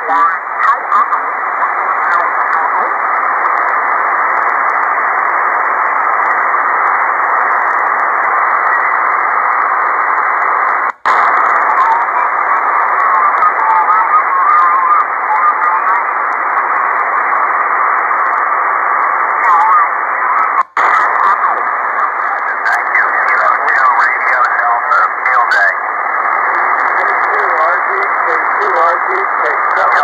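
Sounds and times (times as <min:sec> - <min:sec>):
faint wavering radio signals: 0:00.0 - 0:30.0
radio static hiss: 0:00.0 - 0:30.0.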